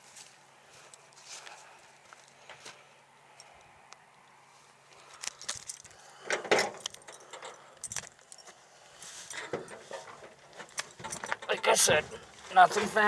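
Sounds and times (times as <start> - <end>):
keys jangling: 5.3 - 6.0, 6.7 - 9.5.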